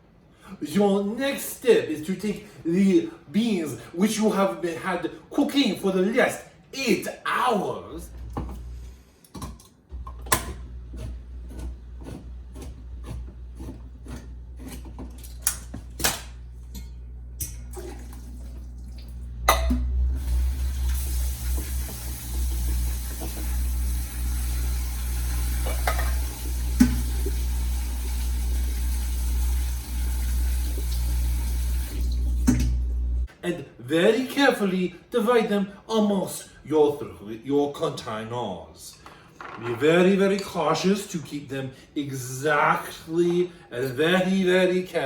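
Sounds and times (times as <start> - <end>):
kitchen tap running into sink: 17.4 - 32.8.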